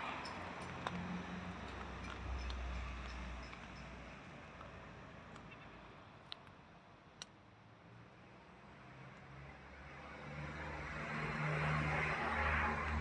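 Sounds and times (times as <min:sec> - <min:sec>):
road vehicle passing: 0:00.0 - 0:05.9, 0:08.5 - 0:13.0.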